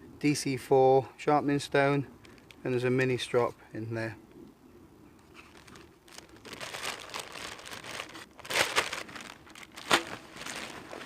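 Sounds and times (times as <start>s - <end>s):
kit bag crinkling and rustling: 5.3s - 11.0s.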